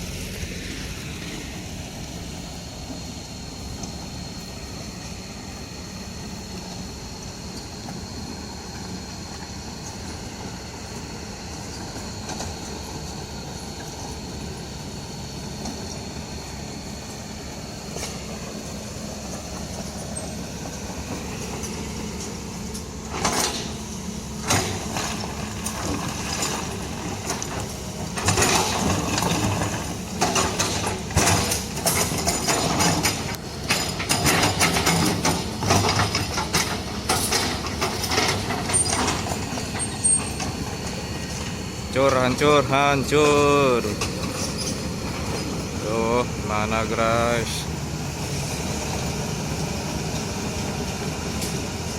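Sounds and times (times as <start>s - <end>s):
vehicle engine running: 0.0s - 51.9s
rattling and knocking: 24.4s - 40.6s.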